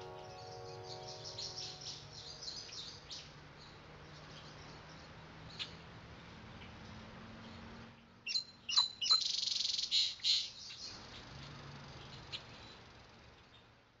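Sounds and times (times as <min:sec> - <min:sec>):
songbird singing: 0:00.0 - 0:05.8, 0:08.2 - 0:11.3.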